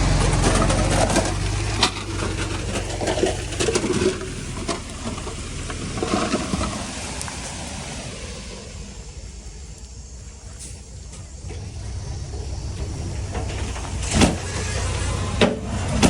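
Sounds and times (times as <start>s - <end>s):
knocks and clattering: 0.0s - 6.8s, 12.8s - 16.0s
diesel engine running: 0.0s - 16.0s.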